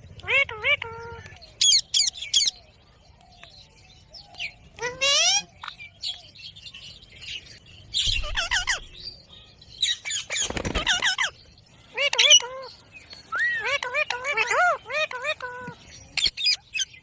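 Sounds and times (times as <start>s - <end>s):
parakeet squawking and chirping: 4.8s - 5.9s, 8.1s - 9.0s, 9.8s - 11.4s, 12.0s - 12.7s.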